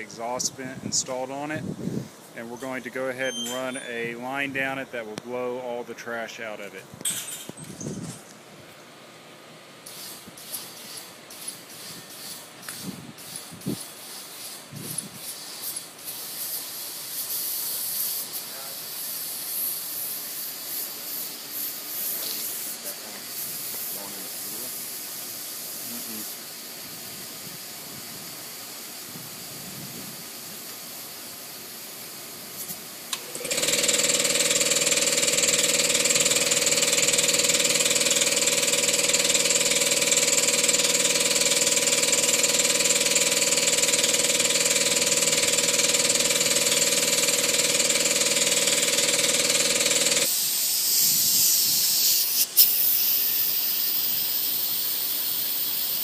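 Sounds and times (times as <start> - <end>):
air blasting through duct: 0.0 - 2.7, 11.8 - 19.8, 50.2 - 56.0.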